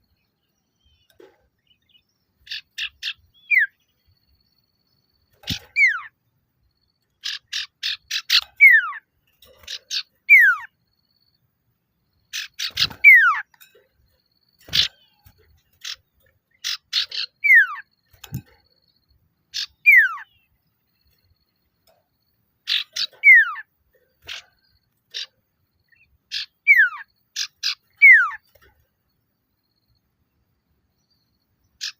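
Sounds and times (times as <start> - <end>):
bird rapid notes: 12.3 - 18.9.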